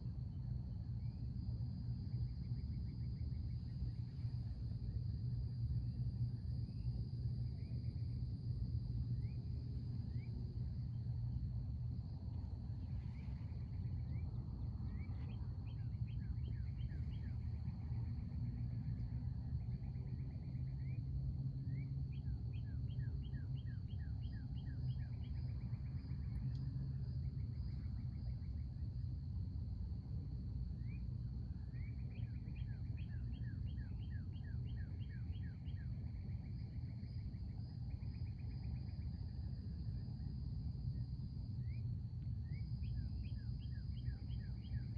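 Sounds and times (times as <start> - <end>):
insect drone: 0.0 - 44.9
low outdoor rumble: 0.0 - 44.9
songbird singing: 12.8 - 21.0, 21.7 - 28.6, 30.8 - 41.8, 42.4 - 44.9.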